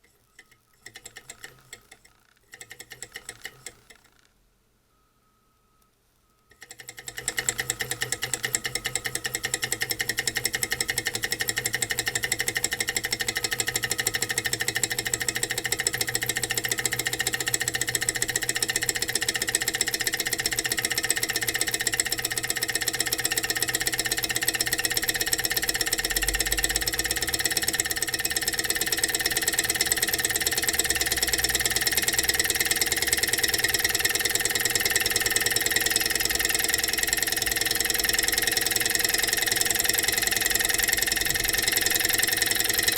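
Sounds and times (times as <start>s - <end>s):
stirling engine ticking: 6.7s - 42.9s.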